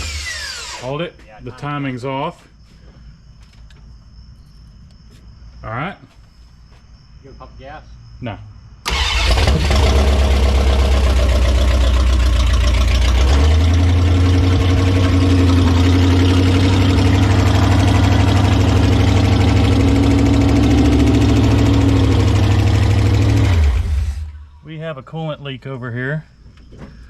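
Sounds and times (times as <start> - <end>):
engine running loud: 8.9 - 24.4.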